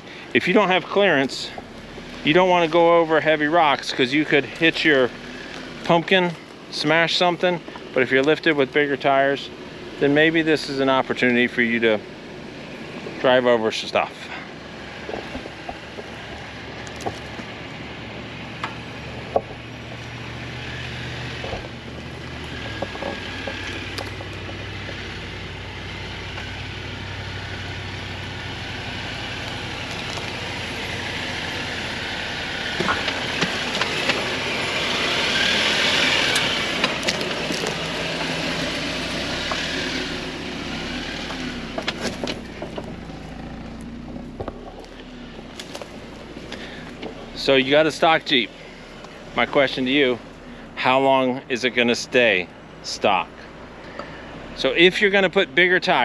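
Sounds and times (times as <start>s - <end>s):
vehicle engine running: 0.0s - 56.0s
knocks and crunches: 36.2s - 38.6s.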